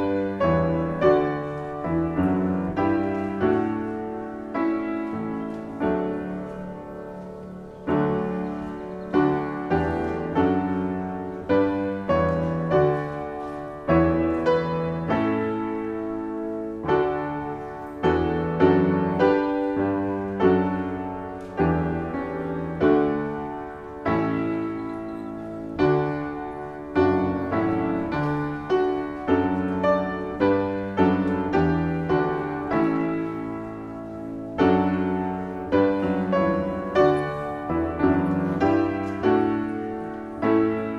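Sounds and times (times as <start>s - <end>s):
piano playing slow chords: 0.0s - 40.9s.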